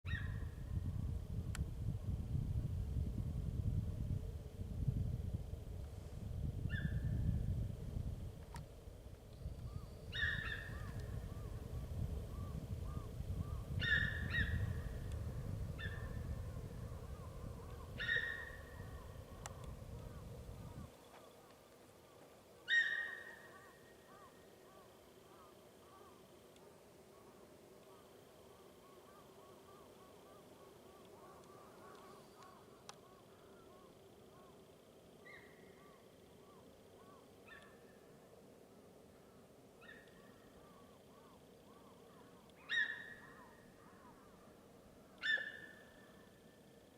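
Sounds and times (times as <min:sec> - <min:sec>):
faint chirping animal calls: 0:00.1 - 0:00.6, 0:06.6 - 0:07.3, 0:09.5 - 0:21.5, 0:22.1 - 0:46.9
higher animal call: 0:12.9 - 0:14.8, 0:17.2 - 0:19.1, 0:22.7 - 0:24.4
deer calling: 0:18.0 - 0:18.7.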